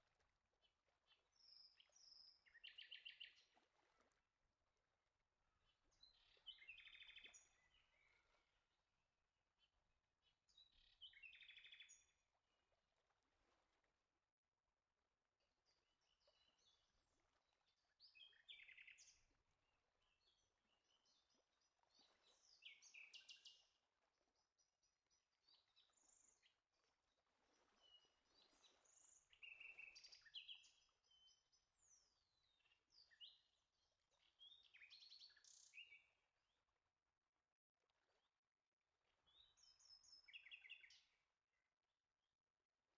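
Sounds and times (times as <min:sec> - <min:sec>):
faint birdsong: 0:00.6 - 0:03.6, 0:05.6 - 0:08.8, 0:09.6 - 0:12.2, 0:15.7 - 0:23.8, 0:27.6 - 0:36.6, 0:39.2 - 0:41.2.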